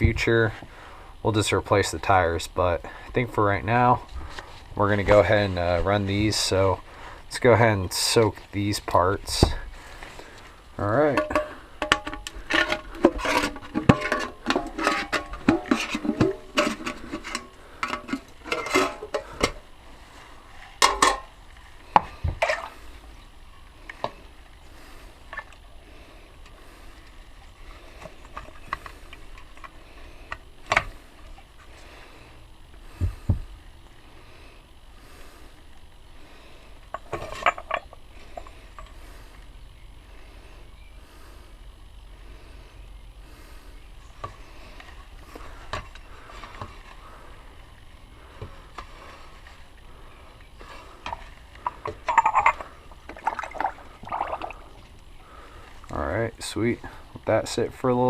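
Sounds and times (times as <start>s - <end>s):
small metal parts clinking: 51.8s - 52.7s.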